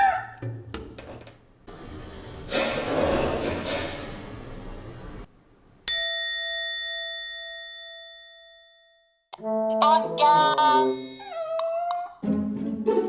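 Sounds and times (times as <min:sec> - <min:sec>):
bell-like chime: 0:05.9 - 0:09.2, 0:10.7 - 0:11.4.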